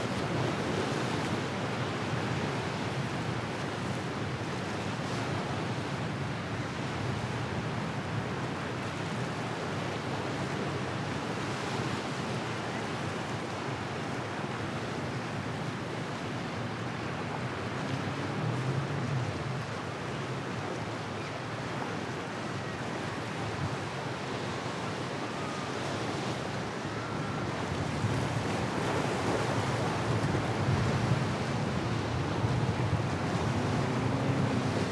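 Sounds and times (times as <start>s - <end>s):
waves breaking: 15.4s - 34.9s.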